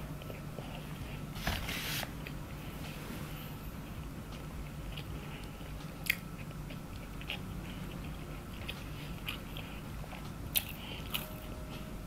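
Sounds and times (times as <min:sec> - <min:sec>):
low steady hum: 0:00.0 - 0:12.0
chewing with mouth closed: 0:04.9 - 0:11.5.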